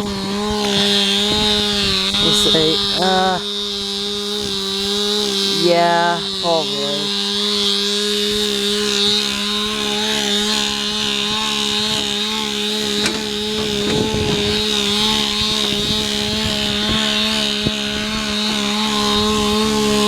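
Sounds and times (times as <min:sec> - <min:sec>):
machine drone: 0:11.1 - 0:19.7
knocks and rattles: 0:11.6 - 0:17.6.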